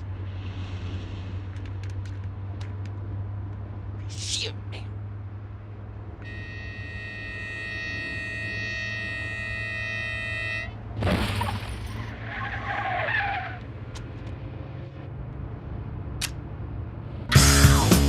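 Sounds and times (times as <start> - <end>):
car engine rumbling: 0.0 - 17.9
long held tone: 6.2 - 10.8
tyres squealing: 6.3 - 13.7
funk music with bass and drums: 17.3 - 18.0.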